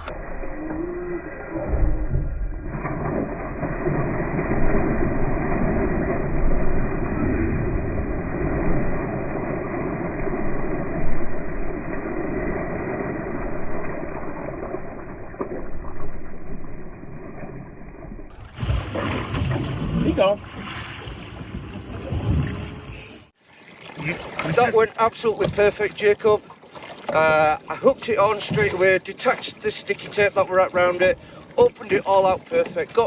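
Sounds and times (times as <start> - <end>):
muffled rushing rumble: 21.1 - 23.3.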